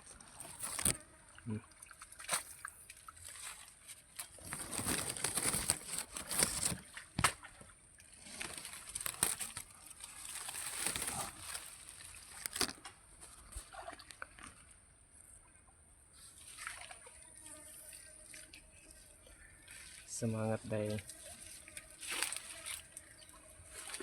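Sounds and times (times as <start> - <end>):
water and mud sloshing: 0.0 - 14.8, 16.3 - 17.2, 19.6 - 24.0
high insect buzz: 0.4 - 1.3, 17.1 - 19.2, 20.7 - 24.0.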